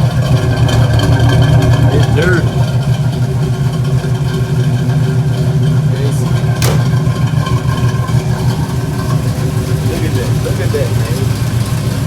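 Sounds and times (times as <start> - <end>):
car engine running: 0.0 - 12.0
sharp click: 6.6 - 7.0.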